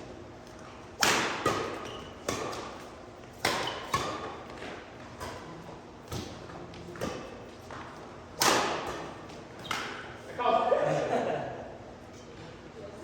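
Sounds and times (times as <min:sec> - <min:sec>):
rackets smacking shuttlecock: 0:00.8 - 0:10.1.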